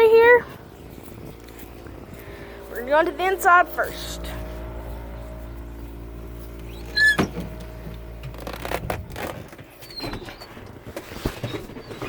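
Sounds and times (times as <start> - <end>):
steady low hum: 0.0 - 11.4
loud short squeak: 6.7 - 7.4.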